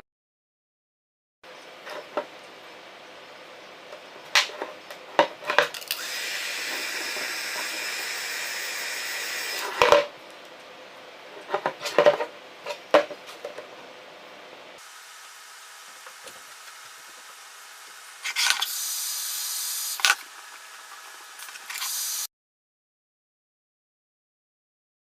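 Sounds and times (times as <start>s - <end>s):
steady hiss: 14.8s - 22.3s.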